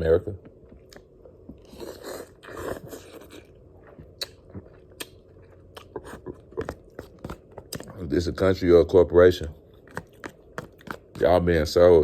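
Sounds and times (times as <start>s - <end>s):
person chewing noodles: 0.4s - 8.0s, 9.7s - 11.2s.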